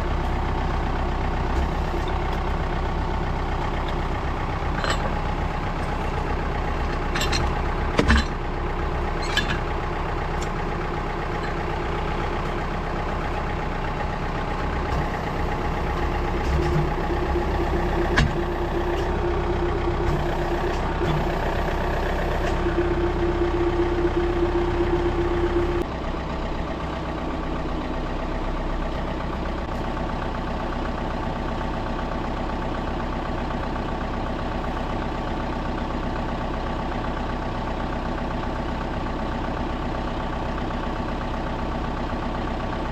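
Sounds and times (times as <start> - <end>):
engine running: 0.0 - 42.9
steady tone: 15.0 - 25.9.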